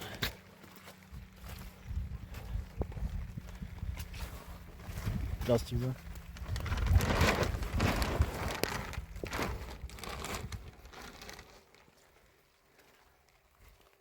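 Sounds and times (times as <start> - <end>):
crackling crinkling clicks: 6.1 - 11.9.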